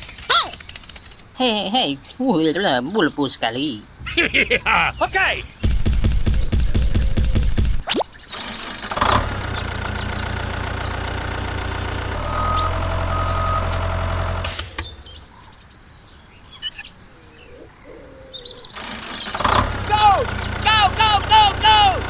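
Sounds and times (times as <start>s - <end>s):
birds chirping: 0.0s - 22.0s
vehicle engine running: 6.9s - 15.3s, 18.8s - 22.0s.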